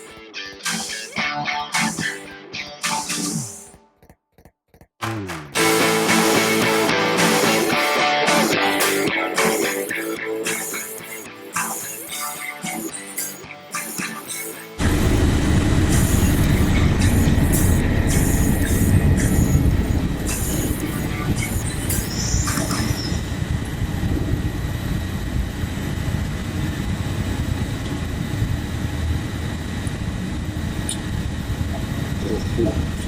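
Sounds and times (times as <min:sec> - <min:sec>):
vehicles and machinery rumbling: 0:14.8 - 0:25.8.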